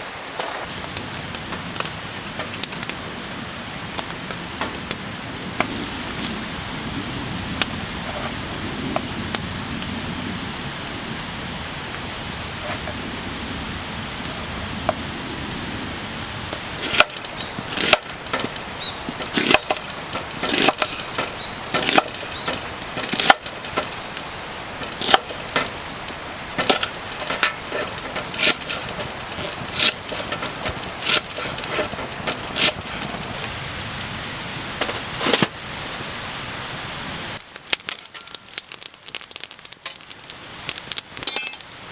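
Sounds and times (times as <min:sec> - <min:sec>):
steady hiss: 0:00.0 - 0:41.9
sharp wooden cracks and knocks: 0:16.6 - 0:34.0, 0:34.6 - 0:35.6, 0:37.4 - 0:41.8.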